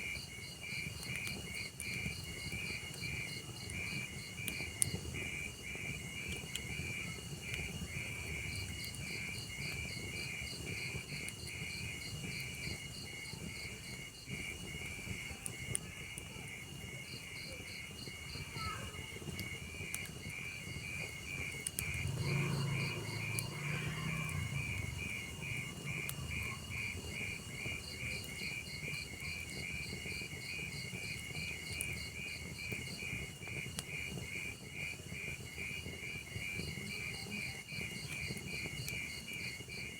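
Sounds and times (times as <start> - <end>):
crickets chirping: 0.0 - 39.9
log fire crackling: 0.0 - 39.9.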